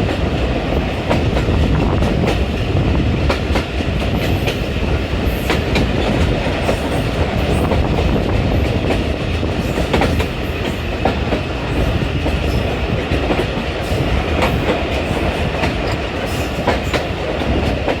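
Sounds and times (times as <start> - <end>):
train rumble: 0.0 - 18.0.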